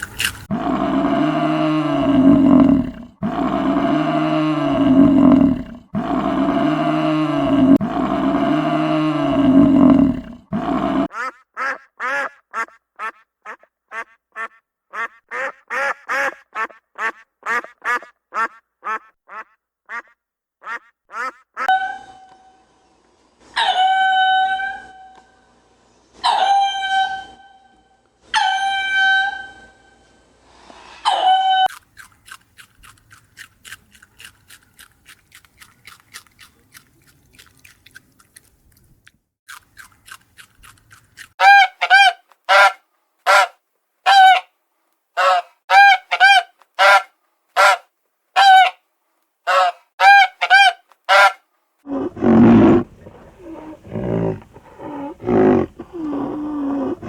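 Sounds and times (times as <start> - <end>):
farm birds calling: 11.1 - 21.8.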